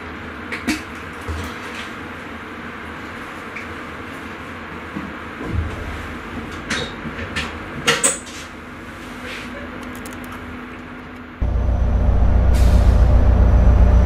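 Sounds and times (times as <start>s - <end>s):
sharp clicks and knocks: 9.8s - 11.3s
loud low hum: 11.4s - 14.0s
low rumble: 11.4s - 14.0s.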